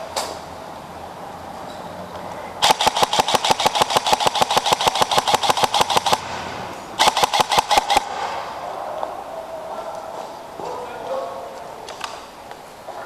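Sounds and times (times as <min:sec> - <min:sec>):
airsoft rifle firing bursts: 0:02.6 - 0:08.6.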